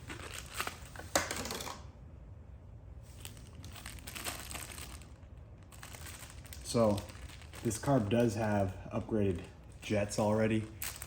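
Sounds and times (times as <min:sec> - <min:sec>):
plastic packaging tearing and crinkling: 0:00.0 - 0:01.7, 0:03.1 - 0:08.6, 0:10.6 - 0:11.0.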